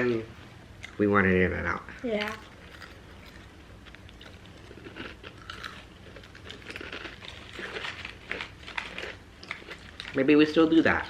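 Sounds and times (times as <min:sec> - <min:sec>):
person chewing crunchy food: 0:02.2 - 0:10.2.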